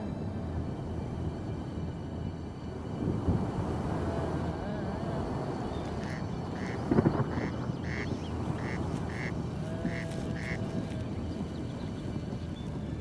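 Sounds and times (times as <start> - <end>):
meadow background: 0.0 - 13.0.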